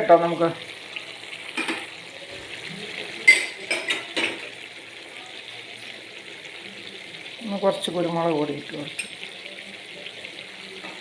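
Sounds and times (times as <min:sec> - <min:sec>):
chicken sizzling in a pan: 0:00.0 - 0:11.0
kitchen utensils clinking: 0:01.5 - 0:02.0, 0:03.2 - 0:04.6, 0:08.9 - 0:09.3.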